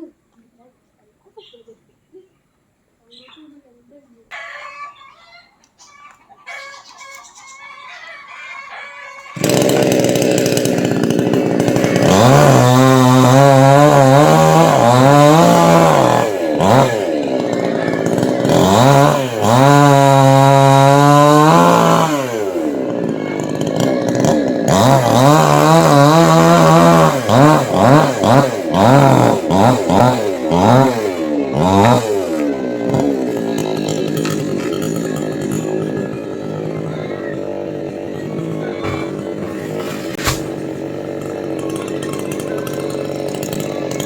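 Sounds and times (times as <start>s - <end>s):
chainsaw revving: 9.2s - 44.0s.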